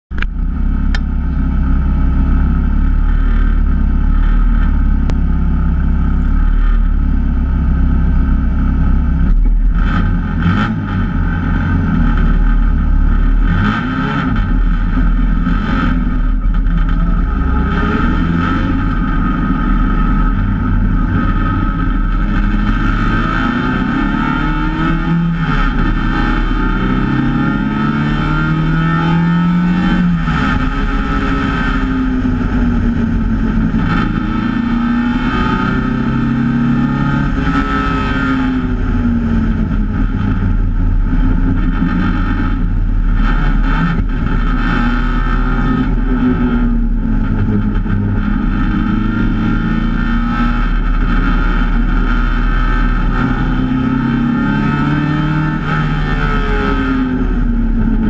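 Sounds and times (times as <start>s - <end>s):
race car engine revving: 2.2s - 58.0s.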